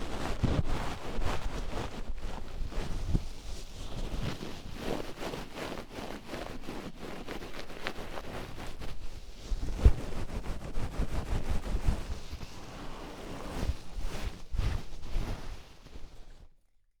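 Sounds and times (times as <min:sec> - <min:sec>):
oiled hands rubbing: 0:05.6 - 0:16.5.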